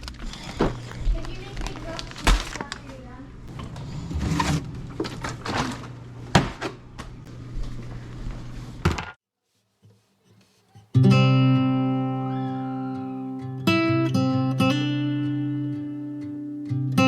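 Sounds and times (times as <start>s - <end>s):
low hum: 0.0s - 8.8s
acoustic guitar chord strummed: 10.8s - 17.0s.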